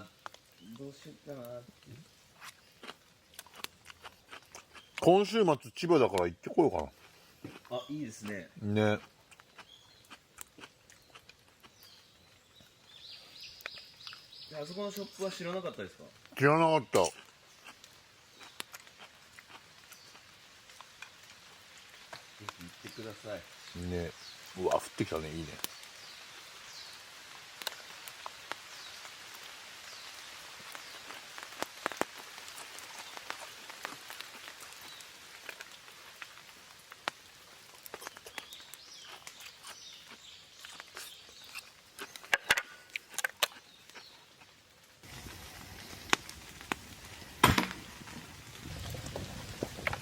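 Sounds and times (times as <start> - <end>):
raindrops tapping on a tarp: 0.0 - 5.1, 17.0 - 23.4, 24.2 - 41.4, 42.0 - 50.0.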